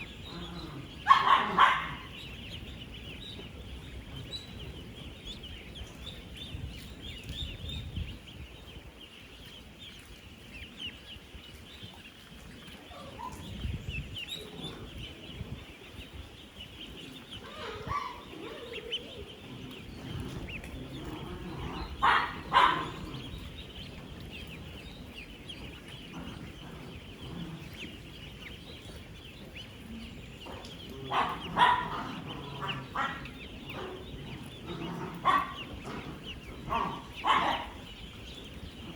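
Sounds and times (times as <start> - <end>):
ducklings peeping: 0.0 - 38.9
lower duckling calls: 0.0 - 38.9.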